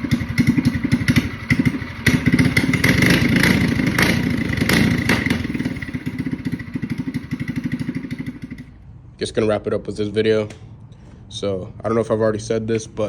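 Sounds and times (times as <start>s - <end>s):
minibike engine revving: 0.0s - 8.7s
exhaust pops: 0.2s - 6.0s.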